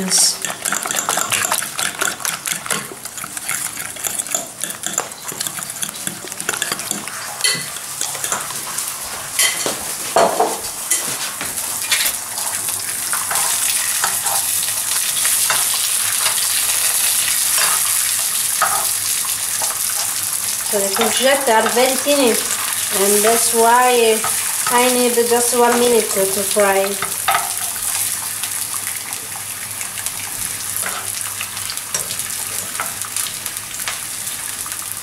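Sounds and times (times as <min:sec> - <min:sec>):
slices frying in oil: 0:00.0 - 0:35.0
fork beating eggs in bowl: 0:00.4 - 0:08.8.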